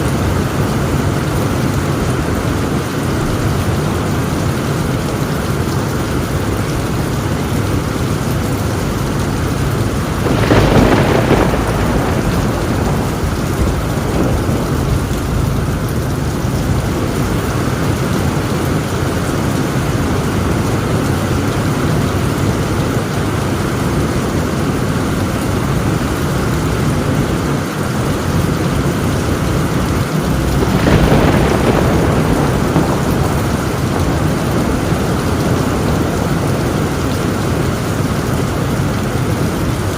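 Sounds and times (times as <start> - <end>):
heavy rain on a tin roof: 0.0 - 39.9
rolls of thunder: 9.3 - 19.2, 28.3 - 37.9.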